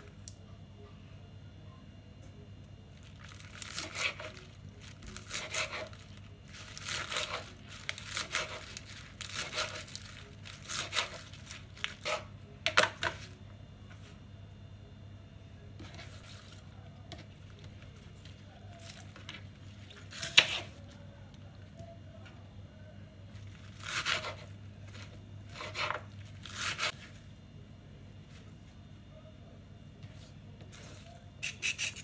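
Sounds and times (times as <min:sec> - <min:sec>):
crinkling and tearing by hand: 0:03.0 - 0:12.3.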